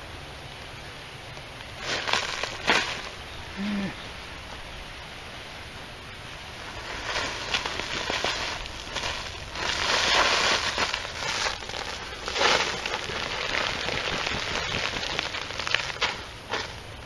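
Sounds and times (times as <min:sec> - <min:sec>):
hands rummaging through soil: 0:01.6 - 0:03.2, 0:06.5 - 0:17.0
tarp crinkling: 0:01.6 - 0:03.9, 0:06.3 - 0:17.0.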